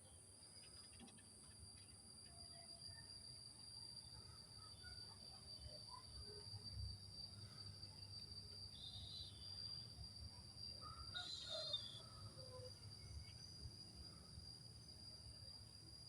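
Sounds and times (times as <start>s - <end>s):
faint short bird chirps: 11.1s - 12.1s.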